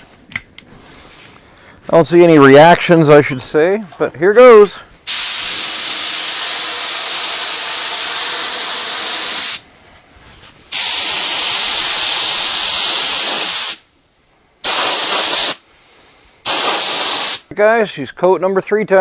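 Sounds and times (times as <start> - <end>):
paint spray gun hissing: 5.1 - 9.6, 10.7 - 13.9, 14.6 - 15.6, 16.4 - 17.4.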